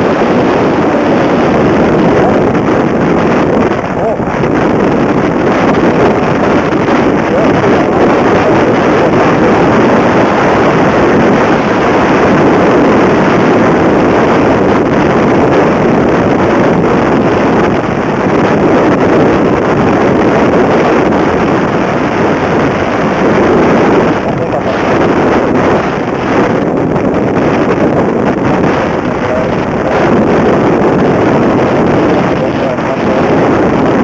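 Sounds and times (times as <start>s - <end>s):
wind on microphone: 0.0s - 34.0s
motorcycle engine running: 18.7s - 34.0s.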